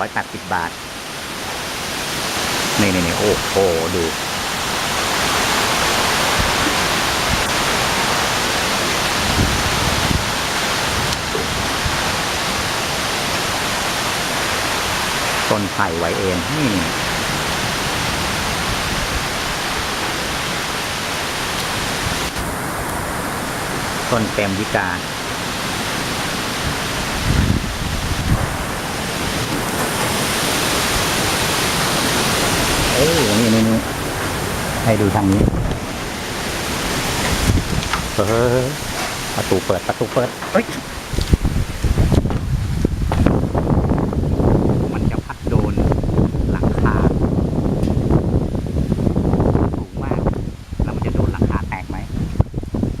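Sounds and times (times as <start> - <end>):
heavy rain pouring: 0.0 - 53.0
wind gusts on microphone: 0.0 - 53.0
short low thumps: 35.1 - 36.0, 40.4 - 47.0.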